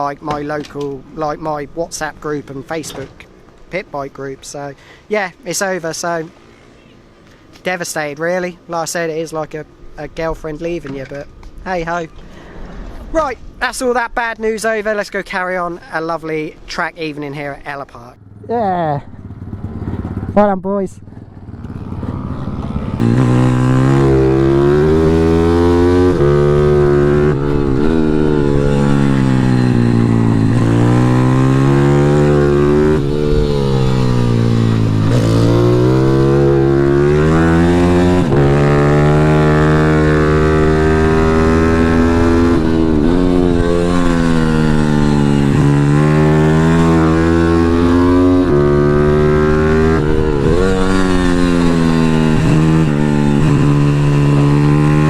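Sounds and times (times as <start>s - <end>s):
pit bike engine revving: 18.2s - 55.0s.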